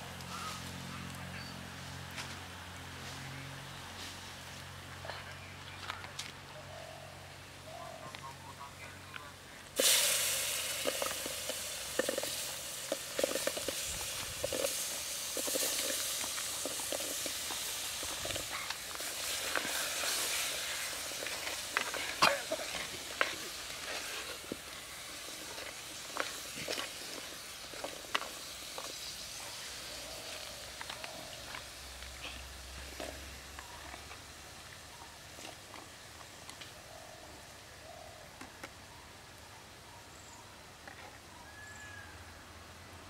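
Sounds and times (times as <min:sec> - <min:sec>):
seeds sizzling in hot oil: 0:09.8 - 0:34.8.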